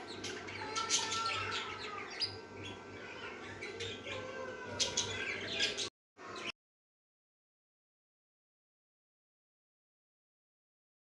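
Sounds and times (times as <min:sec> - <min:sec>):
parrots chirping: 0:00.0 - 0:06.5.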